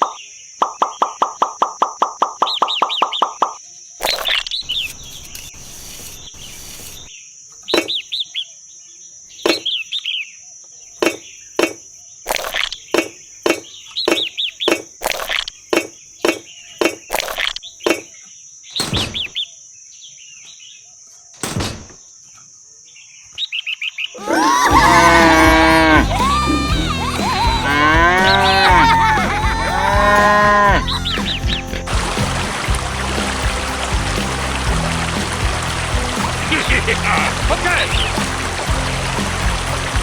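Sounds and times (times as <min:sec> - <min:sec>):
small bird chirping: 0:02.4 - 0:08.6.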